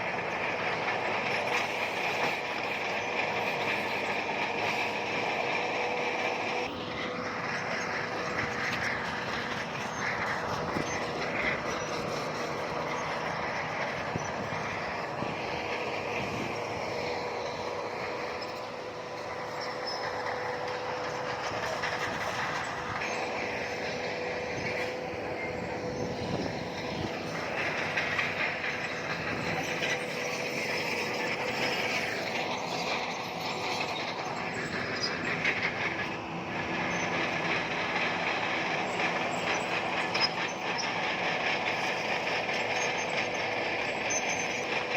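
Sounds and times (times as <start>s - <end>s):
bulldozer engine running: 0.0s - 44.9s
steel tracks clanking and squealing: 0.0s - 44.9s.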